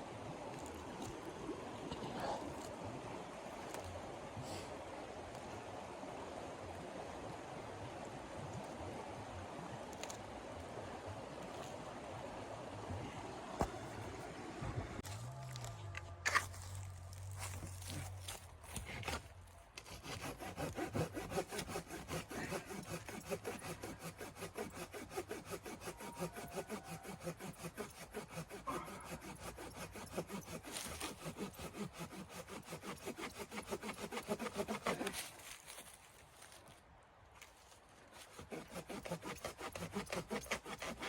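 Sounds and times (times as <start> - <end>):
hand saw cutting wood: 17.8 - 36.0, 38.1 - 41.0.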